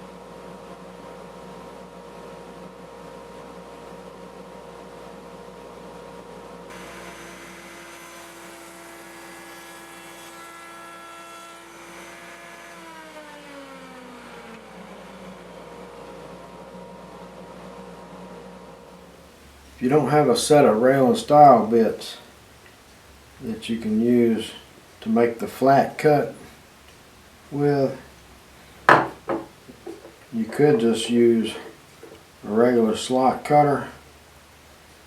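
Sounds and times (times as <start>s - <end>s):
router whining and winding down: 6.7s - 17.4s.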